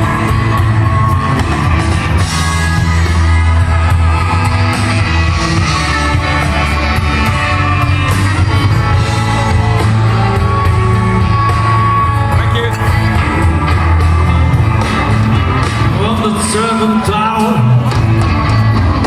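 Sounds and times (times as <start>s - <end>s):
guitar: 0.0s - 19.0s
live blues band playing: 0.0s - 19.0s.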